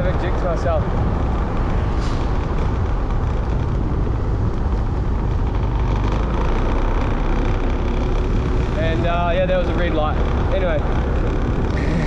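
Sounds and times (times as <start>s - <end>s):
wind noise on microphone: 0.0s - 6.4s
motorbike engine rumble: 0.0s - 12.0s.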